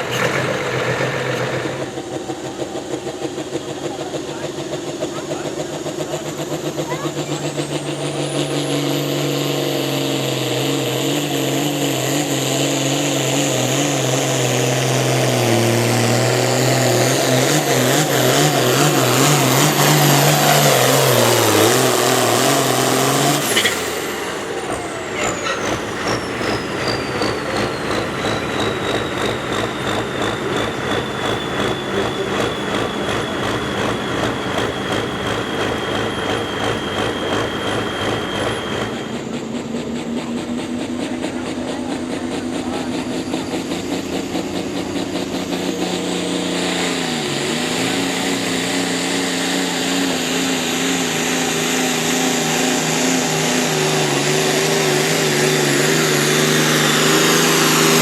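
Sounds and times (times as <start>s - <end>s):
truck engine under load: 0.0s - 58.0s
turbo whistle: 16.5s - 39.4s.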